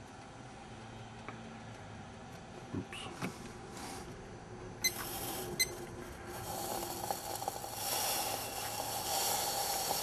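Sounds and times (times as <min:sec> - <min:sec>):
alcohol burner hissing: 0:04.8 - 0:10.0
short electronic beeps: 0:05.6 - 0:05.8.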